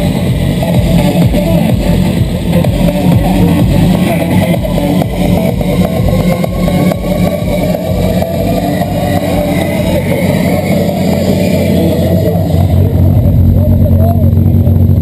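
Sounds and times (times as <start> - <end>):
car engine running loudly: 0.0 - 15.0.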